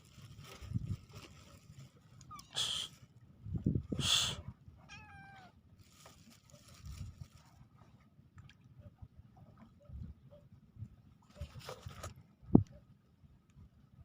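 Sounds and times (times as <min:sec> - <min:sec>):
cat meowing: 0:04.8 - 0:05.6.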